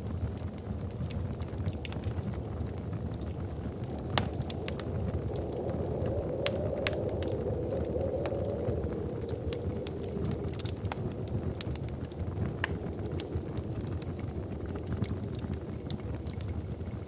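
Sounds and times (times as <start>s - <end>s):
fire popping and snapping: 0.0s - 17.0s
low rumble of flame: 0.0s - 17.0s.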